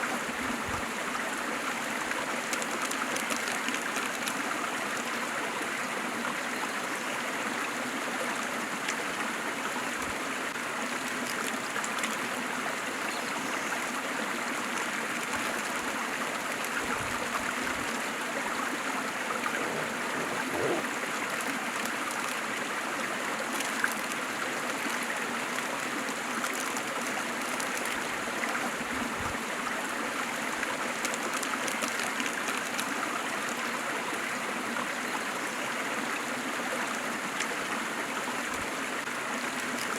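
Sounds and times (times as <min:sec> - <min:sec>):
water trickling and gurgling: 0:00.0 - 0:39.9
waterfall rushing: 0:19.2 - 0:21.4.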